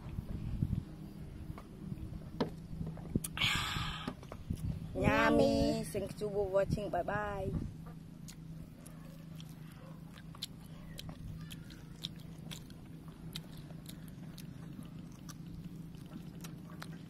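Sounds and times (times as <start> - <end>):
low steady hum: 0.0 - 17.0
people chewing meat: 8.2 - 17.0.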